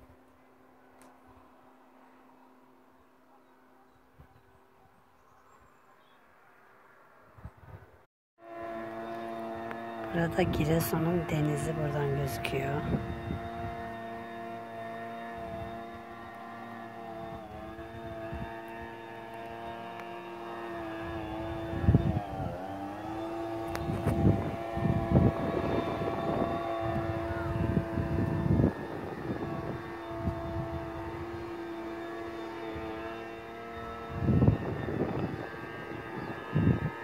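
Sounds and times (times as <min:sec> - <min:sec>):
sprayer engine running: 0:08.4 - 0:37.0.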